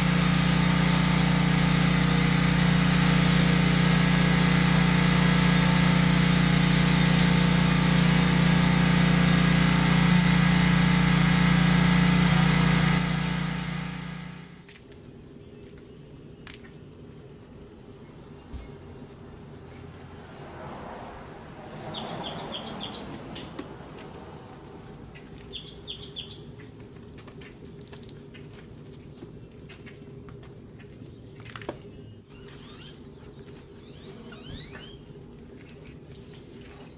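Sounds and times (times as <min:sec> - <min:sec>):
motor-driven machine running: 0:00.0 - 0:14.6
bird chirping: 0:21.9 - 0:23.5, 0:25.2 - 0:26.6.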